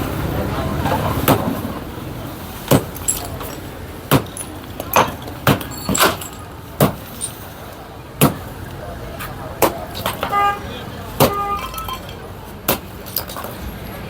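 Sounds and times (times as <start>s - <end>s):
low street background: 0.0s - 14.0s
sharp knocks and clanks: 2.7s - 7.4s.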